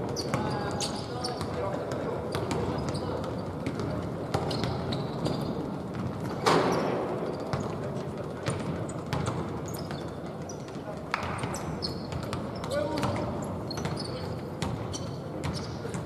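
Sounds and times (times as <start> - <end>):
basketball bouncing: 1.4 - 5.0, 8.4 - 10.1, 11.1 - 14.0, 14.6 - 16.0.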